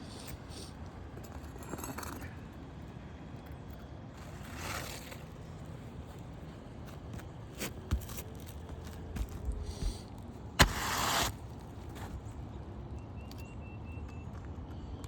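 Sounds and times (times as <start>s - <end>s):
low background hum: 0.0s - 15.0s
scraping on shingles: 4.2s - 12.4s.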